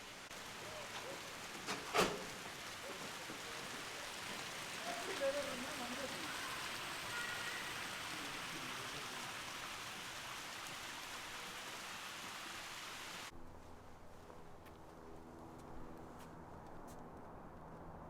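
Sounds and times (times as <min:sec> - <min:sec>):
running splashing water: 0:00.0 - 0:13.3.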